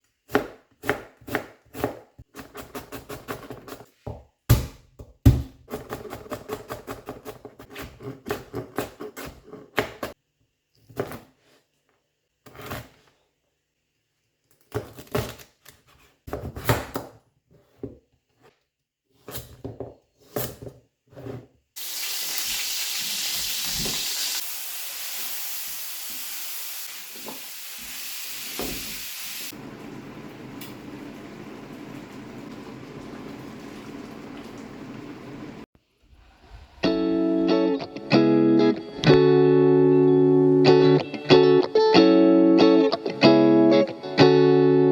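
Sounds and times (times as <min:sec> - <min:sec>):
knife chopping on cutting board: 0:00.3 - 0:10.1.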